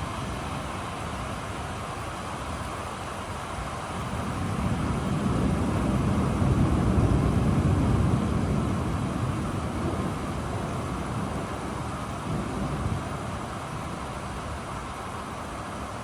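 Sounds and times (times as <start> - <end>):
steady rain: 0.0 - 16.0
thunder rumbling: 4.0 - 14.8.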